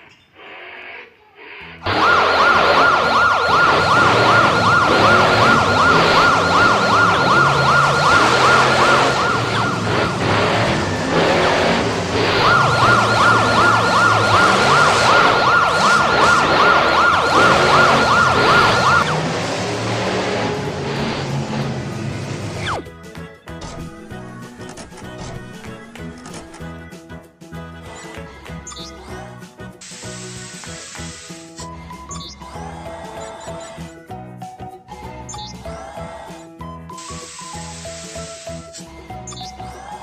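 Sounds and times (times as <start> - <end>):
background music: 1.6 - 40.0
fast warbling siren: 1.8 - 19.3, 22.6 - 22.8.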